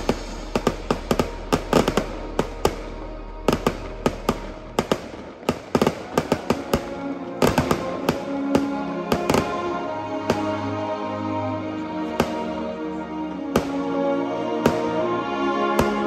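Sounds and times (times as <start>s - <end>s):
fireworks bangs: 0.0s - 10.7s, 13.5s - 16.0s
music: 0.0s - 16.0s.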